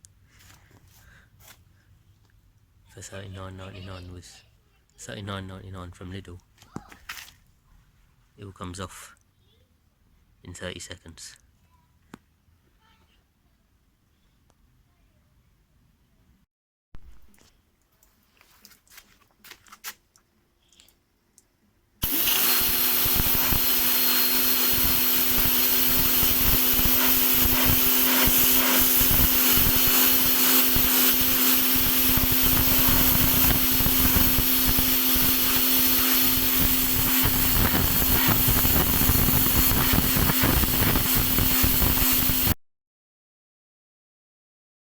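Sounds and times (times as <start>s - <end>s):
pressure washer motor hum: 22.0s - 42.6s
water jet hissing: 22.0s - 42.6s.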